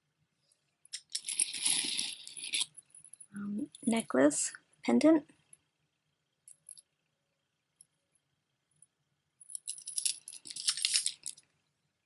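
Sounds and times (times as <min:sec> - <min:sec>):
jewelry clinking and jangling: 0:00.9 - 0:03.4, 0:08.8 - 0:11.4.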